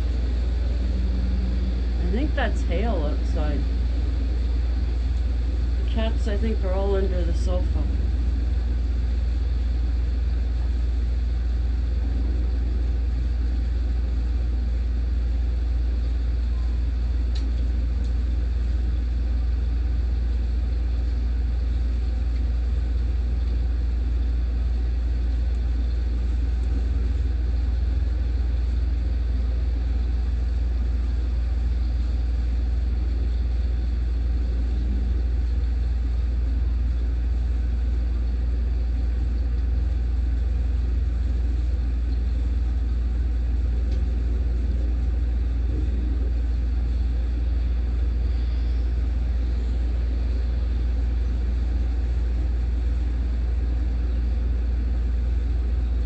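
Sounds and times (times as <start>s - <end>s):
low thunder rumble: 0.0s - 2.3s.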